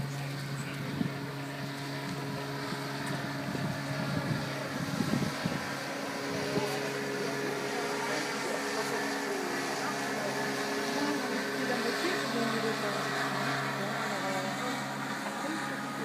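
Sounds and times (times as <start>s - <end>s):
boat motor running: 0.0s - 16.0s.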